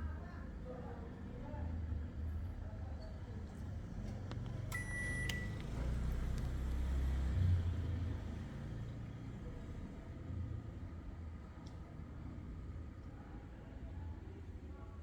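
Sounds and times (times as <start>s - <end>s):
air conditioner electronic beep: 4.7s - 5.9s.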